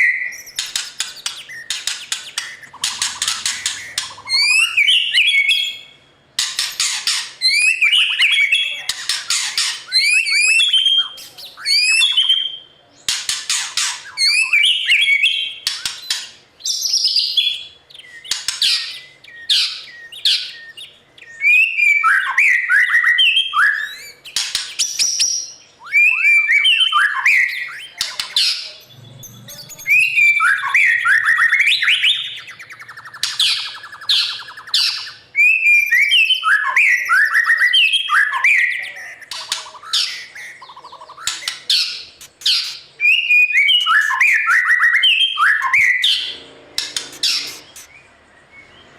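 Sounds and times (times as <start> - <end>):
bird singing whistles and chatter: 0.0 - 48.7
buzzy rattling bird note: 46.7 - 47.9.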